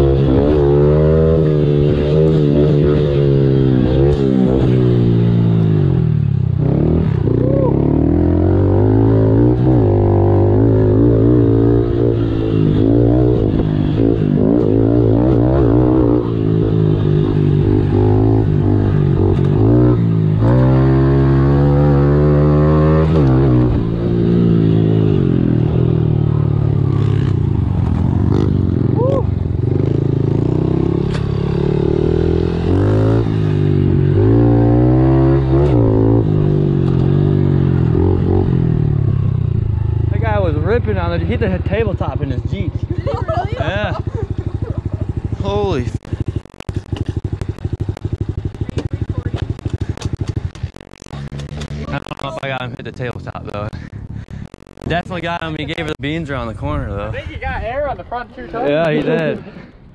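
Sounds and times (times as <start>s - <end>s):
pit bike engine revving: 0.0s - 57.0s.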